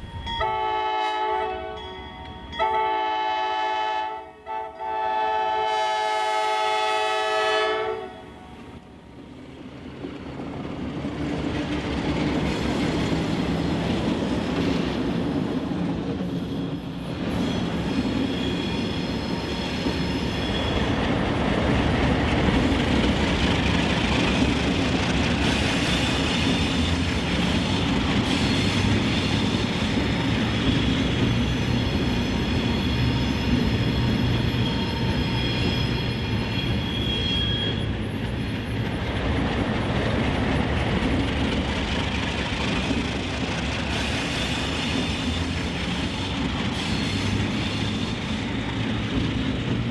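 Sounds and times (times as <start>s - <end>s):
train horn: 0.0s - 9.0s, 25.7s - 38.4s
diesel locomotives rumbling past: 0.0s - 49.9s
high wheel squeal on rails: 10.1s - 49.9s.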